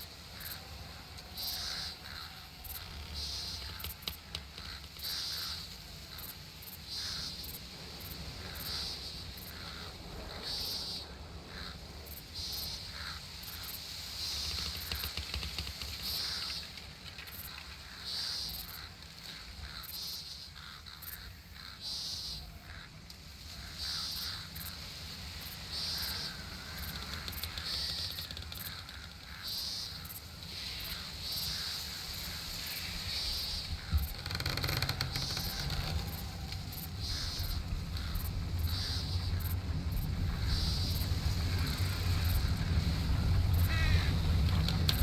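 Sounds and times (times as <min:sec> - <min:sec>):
low rumble: 0:35.0 - 0:45.0.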